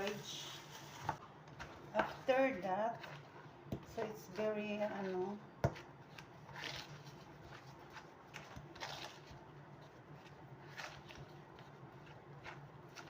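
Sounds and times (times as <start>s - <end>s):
batter being stirred: 0.0s - 13.0s
low steady hum: 0.0s - 13.0s.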